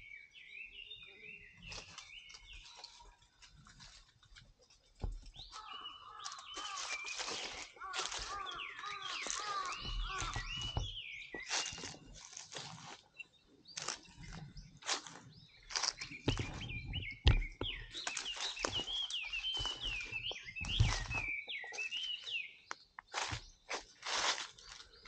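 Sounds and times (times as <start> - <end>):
small birds chirping: 0.0 - 25.0
crunches and rustles: 1.7 - 13.2, 13.8 - 21.4.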